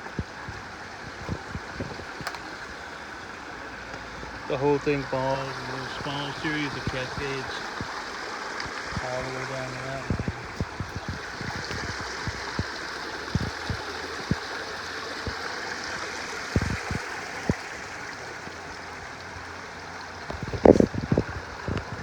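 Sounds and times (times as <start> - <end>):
stream water rushing and splashing: 0.0 - 22.0
short low thumps: 8.9 - 12.8.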